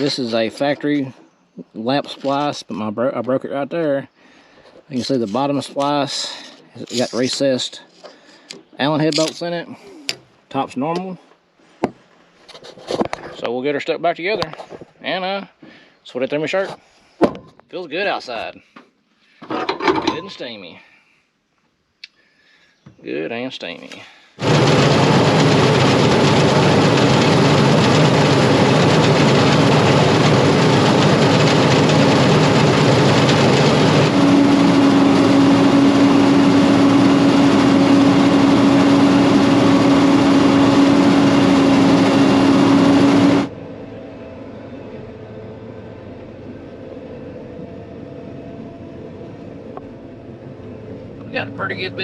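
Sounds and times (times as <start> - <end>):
combine harvester running: 0.0 - 1.2, 4.9 - 8.4, 24.4 - 52.0
strong steady hum: 24.4 - 52.0.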